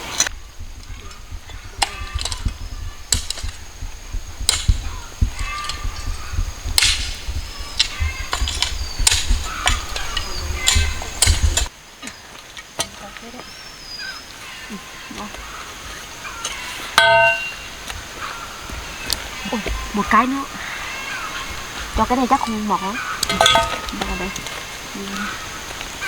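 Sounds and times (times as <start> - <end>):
wind rumble on microphone: 0.0 - 11.7
birds chirping: 0.0 - 26.0
sugar cane chopping and snapping: 4.2 - 11.7.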